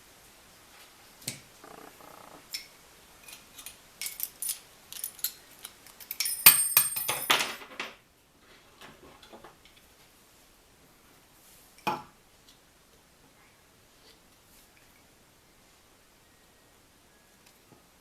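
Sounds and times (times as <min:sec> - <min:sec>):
metal tools clicking and clinking: 0:03.2 - 0:07.7.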